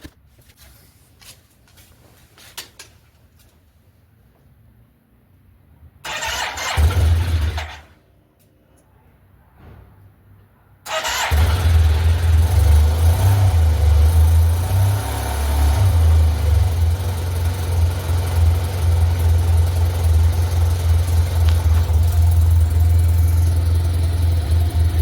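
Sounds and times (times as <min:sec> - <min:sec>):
motor scooter engine idling: 0:11.0 - 0:25.0.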